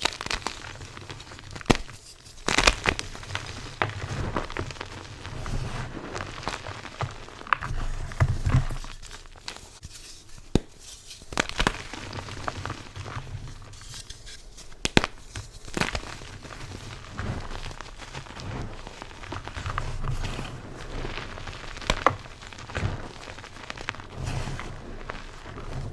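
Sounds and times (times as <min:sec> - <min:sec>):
chalk crunching and crumbling: 0:00.0 - 0:25.9
chalk snapping: 0:09.0 - 0:12.5.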